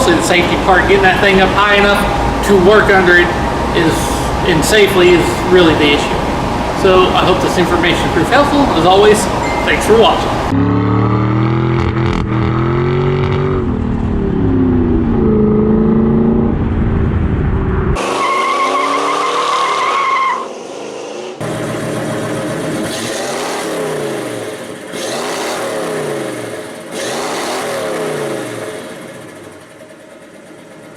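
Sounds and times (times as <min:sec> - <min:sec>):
car engine revving: 0:10.1 - 0:29.8.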